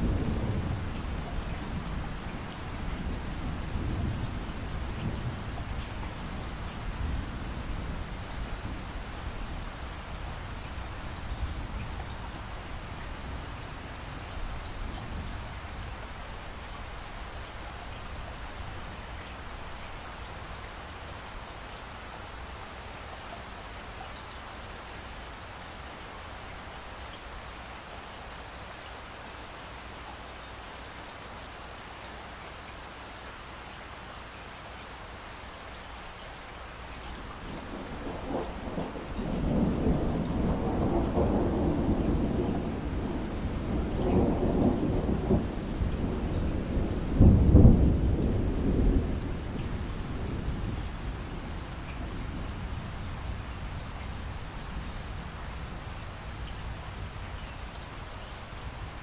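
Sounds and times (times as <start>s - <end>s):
low rumble of thunder: 0.0s - 16.5s, 37.1s - 59.0s
steady rain falling: 0.0s - 59.0s.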